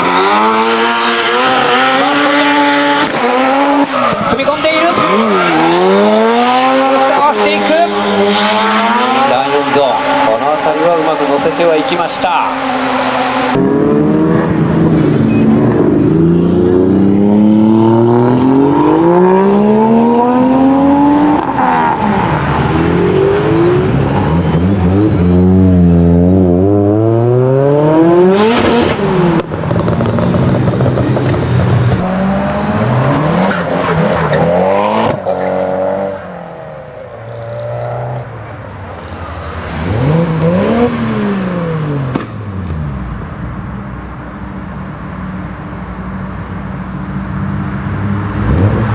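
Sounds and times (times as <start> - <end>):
car engine revving: 0.0 - 48.9
tyre squeal: 21.3 - 25.3.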